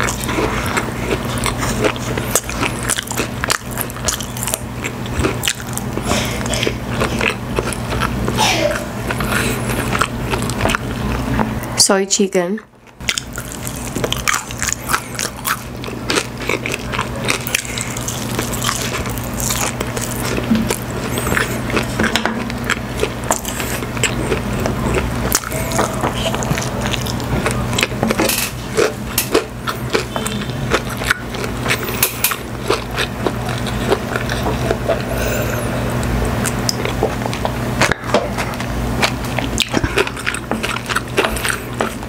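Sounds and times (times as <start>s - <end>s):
crunching and chewing fried chicken: 0.0s - 11.6s, 12.6s - 42.0s
steady low hum: 0.0s - 42.0s.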